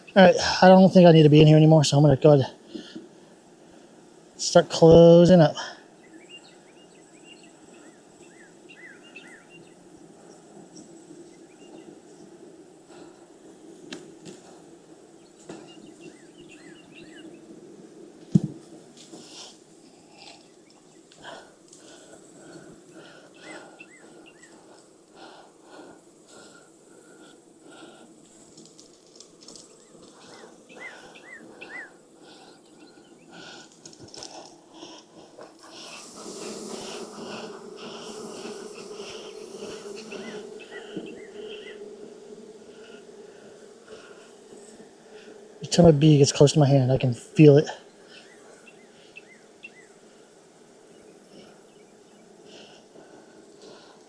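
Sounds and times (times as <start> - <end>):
honey bees humming: 0.0 - 54.0
bird chirping: 6.0 - 12.2, 15.2 - 17.4, 29.8 - 32.0
small bird chirping: 30.7 - 32.0.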